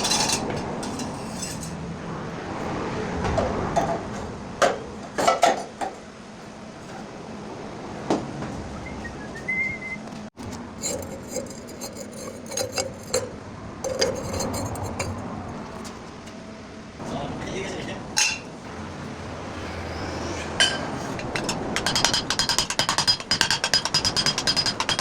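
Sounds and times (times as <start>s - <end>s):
metal parts knocking: 10.8s - 15.2s, 20.6s - 25.0s
metal clinks and taps: 20.7s - 25.0s.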